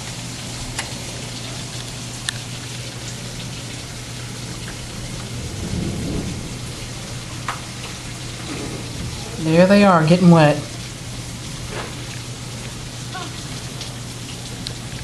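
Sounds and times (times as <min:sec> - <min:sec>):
steady rain: 0:00.0 - 0:15.0
low hum: 0:04.3 - 0:09.8
low rumble: 0:04.6 - 0:09.8.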